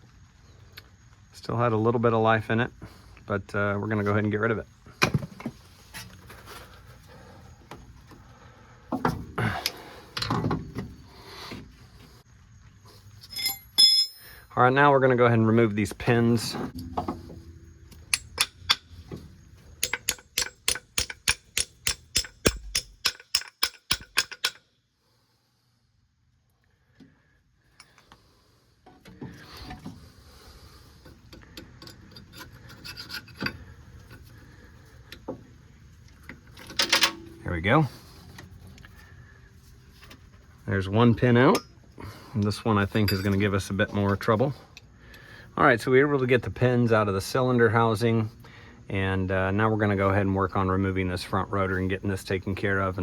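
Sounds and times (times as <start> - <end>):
metal brake parts clinking: 13.2 - 14.5, 16.7 - 24.6, 36.6 - 37.5, 42.9 - 43.5
metallic clicks and scraping: 16.7 - 24.6, 31.0 - 34.4
hand tools knocking: 16.8 - 19.0, 19.8 - 24.6.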